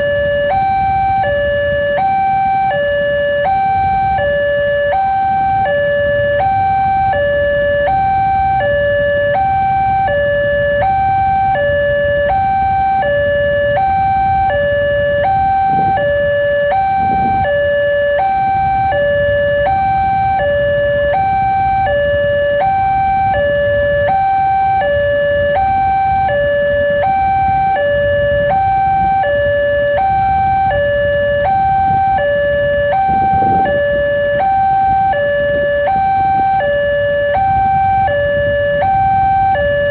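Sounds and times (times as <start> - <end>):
level crossing two-tone alarm: 0.0 - 39.9
road traffic engine rumble: 0.0 - 39.9.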